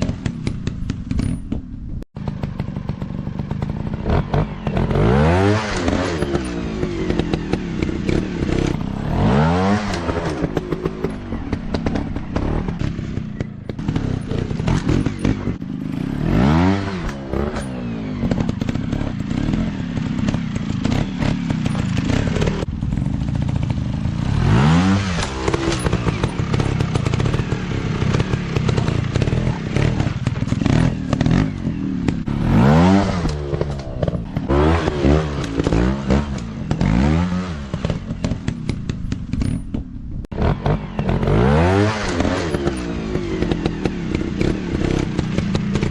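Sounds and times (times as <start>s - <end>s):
bike knocks and clatter: 0.0s - 45.9s
dirt bike engine revving: 2.2s - 45.9s.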